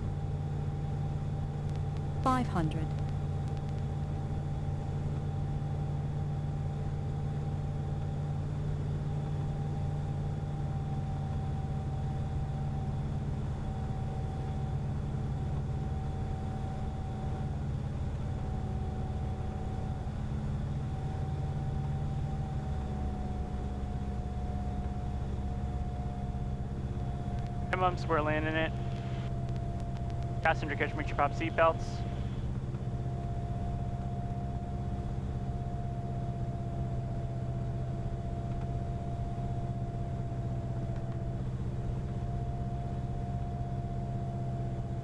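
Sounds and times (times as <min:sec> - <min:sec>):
small plane cabin drone: 0:27.0 - 0:32.6.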